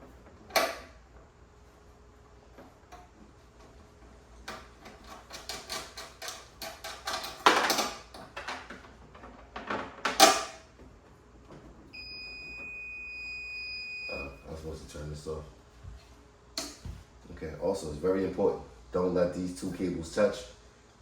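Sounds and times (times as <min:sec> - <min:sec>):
high electronic alarm tone: 0:12.0 - 0:14.5.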